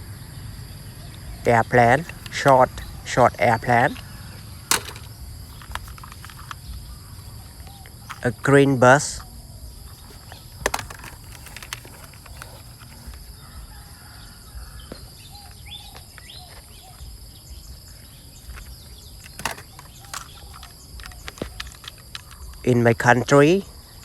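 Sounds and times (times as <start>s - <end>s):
insects chirring: 0.0s - 24.0s
sharp clicks: 1.1s - 6.8s, 18.6s - 22.7s.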